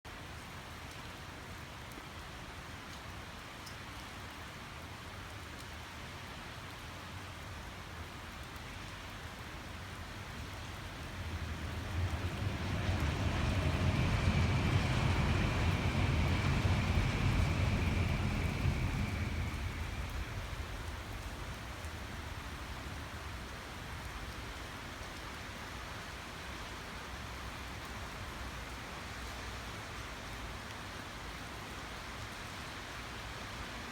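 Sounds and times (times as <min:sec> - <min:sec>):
steady noisy hiss: 0:09.1 - 0:33.9
train passing at speed: 0:09.6 - 0:24.6
faint high whine: 0:09.8 - 0:22.9.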